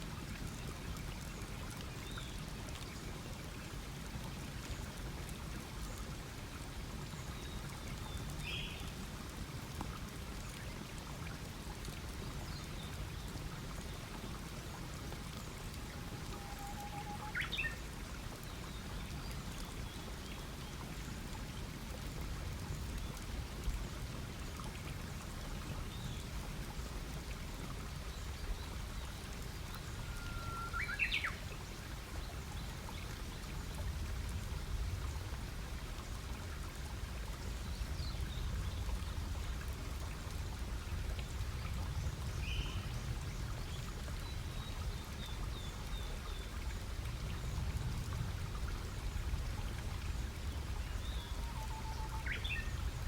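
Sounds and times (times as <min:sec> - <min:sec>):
bird calls: 0:30.1 - 0:31.4.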